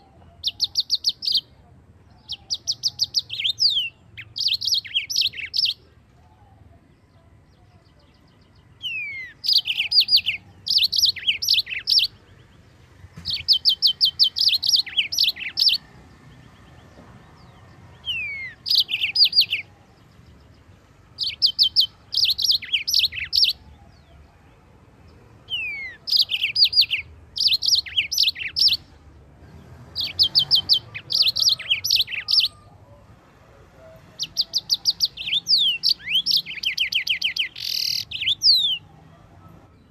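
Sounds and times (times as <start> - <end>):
bird chirping and whistling: 0.0 - 1.5, 2.2 - 5.8, 8.9 - 12.1, 13.2 - 15.8, 18.1 - 19.7, 21.2 - 23.6, 25.5 - 28.8, 30.0 - 32.6, 34.2 - 38.9.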